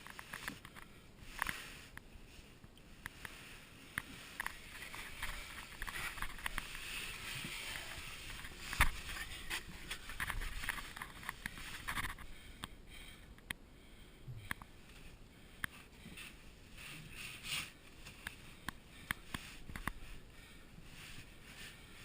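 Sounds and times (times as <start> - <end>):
rustling and scraping: 0.0 - 12.4, 14.8 - 22.0.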